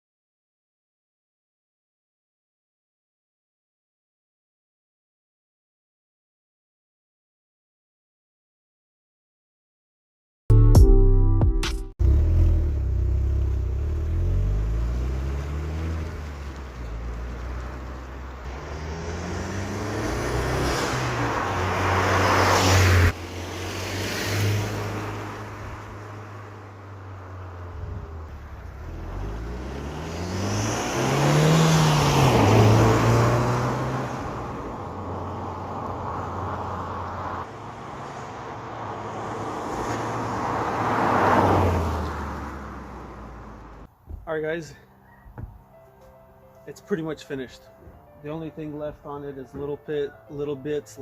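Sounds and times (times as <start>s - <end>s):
car engine accelerating past: 12.0s - 43.9s.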